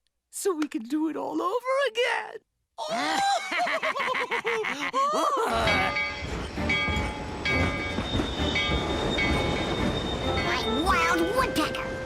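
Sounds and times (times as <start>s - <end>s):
cartoon train rumbling: 5.5s - 12.0s.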